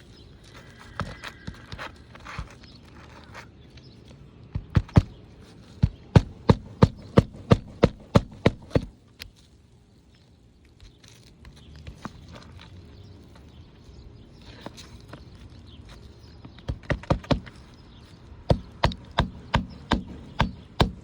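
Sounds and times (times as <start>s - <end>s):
hammer driving nails: 6.1s - 8.9s, 16.7s - 17.5s, 18.5s - 21.0s.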